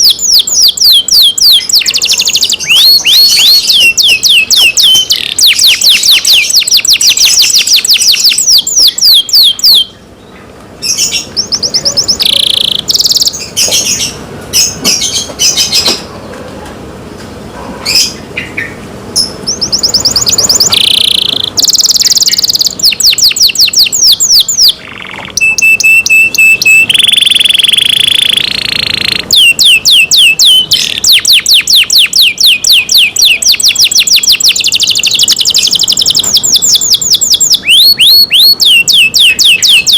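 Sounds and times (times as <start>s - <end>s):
canary held whistle: 0.0s - 9.9s, 25.4s - 39.9s
canary trilling: 0.0s - 16.1s, 17.8s - 39.9s.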